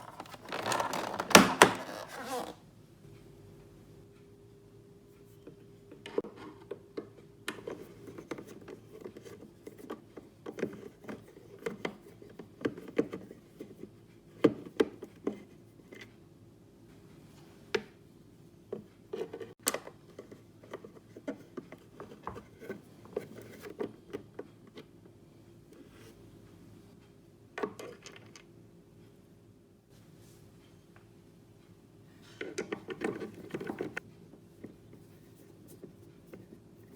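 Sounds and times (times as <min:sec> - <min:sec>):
plastic parts clicking and rubbing: 0:00.0 - 0:02.6
faint steady hum: 0:00.0 - 0:14.6.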